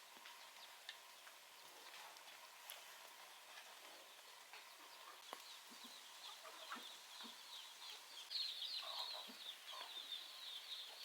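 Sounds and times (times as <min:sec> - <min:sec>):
chickens clucking: 0:03.2 - 0:11.0.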